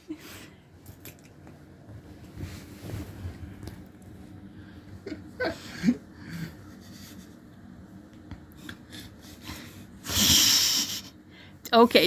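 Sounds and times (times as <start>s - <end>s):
fabric rustling: 1.9s - 4.4s
breathy hiss: 9.4s - 11.6s.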